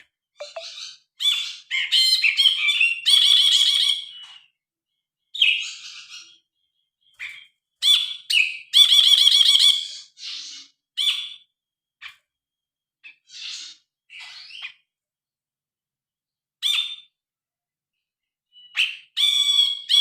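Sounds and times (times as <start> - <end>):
bird singing warbled notes: 0.4 - 0.8.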